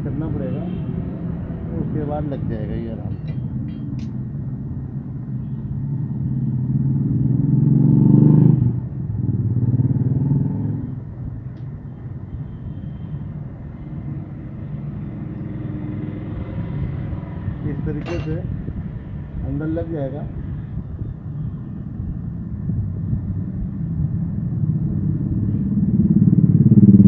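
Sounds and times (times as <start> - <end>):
motorcycle engine running: 24.1 - 27.0.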